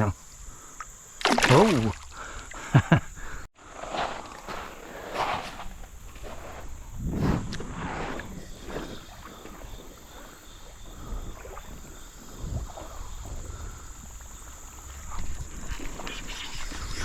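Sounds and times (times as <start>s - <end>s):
high insect buzz: 0.0s - 17.0s
wading steps sloshing through water: 1.2s - 2.8s.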